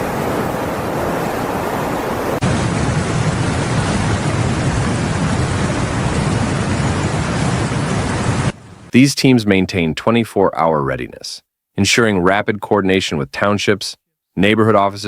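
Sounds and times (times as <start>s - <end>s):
heavy rain rushing: 0.0s - 9.0s.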